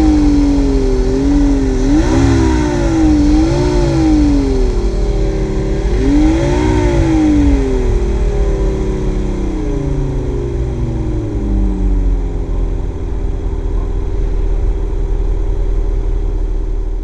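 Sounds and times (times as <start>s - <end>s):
damaged car engine idling: 0.0s - 17.0s.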